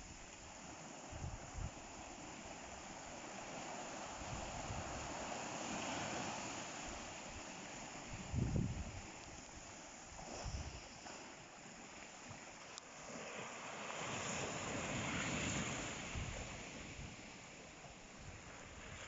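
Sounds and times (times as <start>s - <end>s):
ocean waves washing onto shore: 0.0s - 19.0s
wind buffeting microphone: 8.0s - 10.9s, 14.3s - 17.3s.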